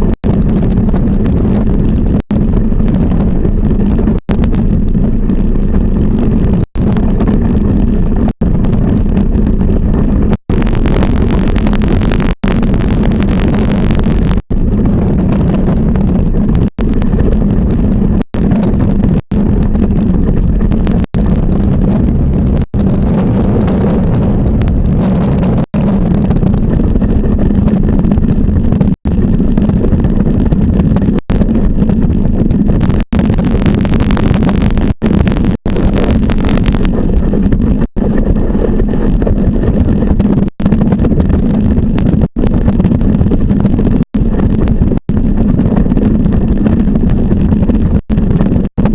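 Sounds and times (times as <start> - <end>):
iceboat runners rumbling on ice: 0.0 - 48.9
wind on microphone: 0.0 - 48.9.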